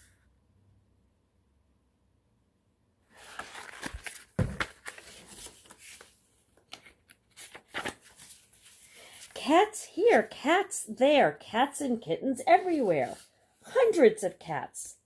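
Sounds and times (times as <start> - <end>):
book pages turning: 3.1 - 9.4, 12.6 - 13.3.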